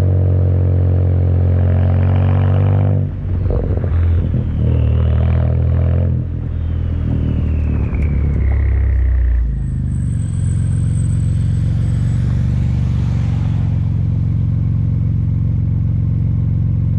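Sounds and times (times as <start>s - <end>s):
car engine droning: 0.0s - 16.9s
turbo whine falling in pitch: 3.2s - 15.7s.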